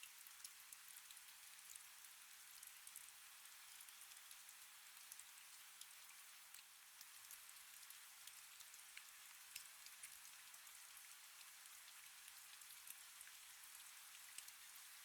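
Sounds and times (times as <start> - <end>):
faint steady rain: 0.0 - 15.0.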